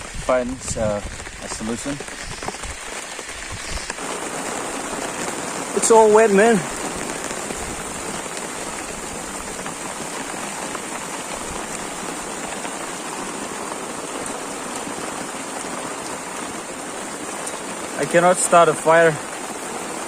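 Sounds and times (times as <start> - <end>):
heavy rain pattering: 0.0 - 20.0.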